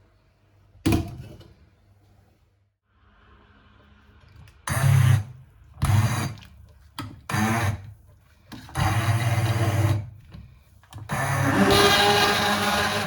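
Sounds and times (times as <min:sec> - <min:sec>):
kitchen appliance motor whirring: 0:11.0 - 0:13.0.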